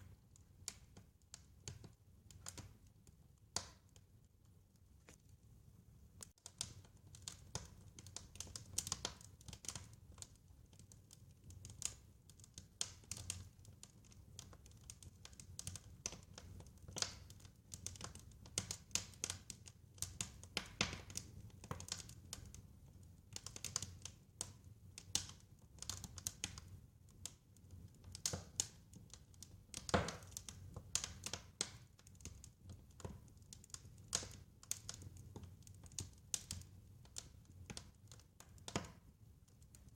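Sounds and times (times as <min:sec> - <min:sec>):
wood fire crackling and popping: 0:00.0 - 0:05.4, 0:06.1 - 0:39.9.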